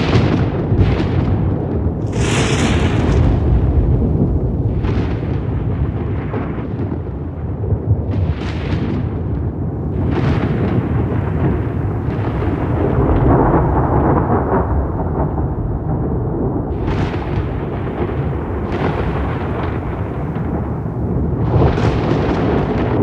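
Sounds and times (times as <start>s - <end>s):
rolling thunder: 0.0s - 23.0s
sharp thunder claps: 0.0s - 23.0s.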